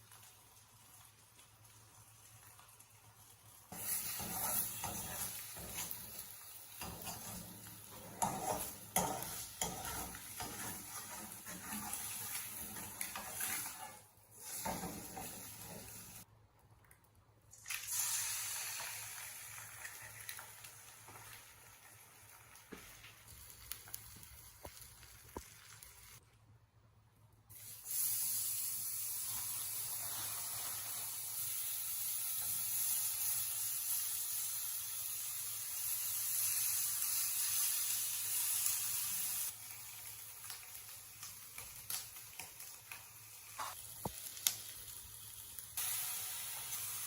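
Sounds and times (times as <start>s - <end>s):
food sizzling in a frying pan: 0.0s - 16.3s, 17.6s - 26.2s, 27.5s - 47.0s
utensil stirring: 3.7s - 16.2s.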